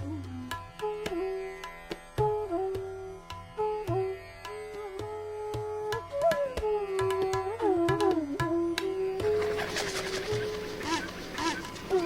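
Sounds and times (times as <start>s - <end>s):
tabla strokes: 0.0s - 12.0s
flute playing slow melody: 2.2s - 4.0s, 4.7s - 12.0s.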